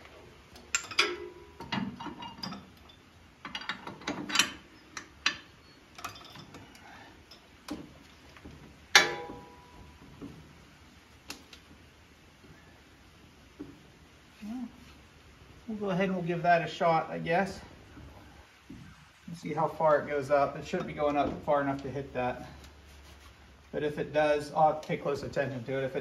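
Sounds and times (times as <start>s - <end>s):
metal tools clicking and clanking: 0.6s - 7.8s
loud ringing metal clank: 9.0s - 10.0s.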